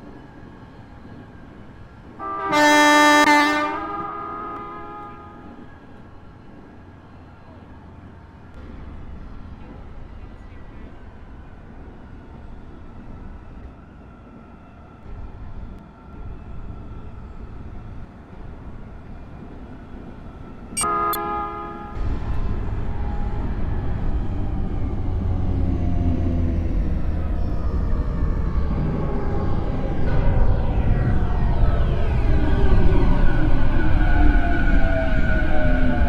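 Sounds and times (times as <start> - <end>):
train horn blast: 2.2 - 5.6, 20.8 - 22.4
train rumble: 21.8 - 36.0.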